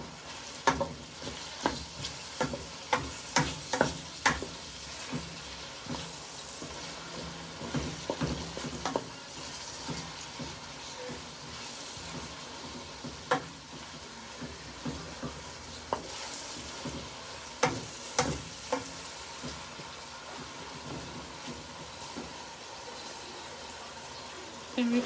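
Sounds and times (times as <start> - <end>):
onions sizzling in a pot: 0.0 - 25.0
spoon knocking against pot: 16.8 - 19.6.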